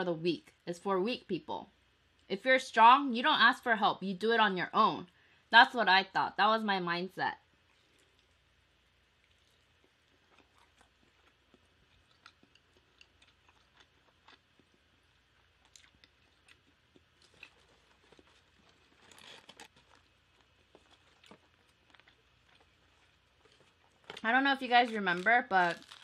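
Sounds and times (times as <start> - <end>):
close-miked chewing: 7.6 - 26.0
crunchy rustle: 17.2 - 26.0.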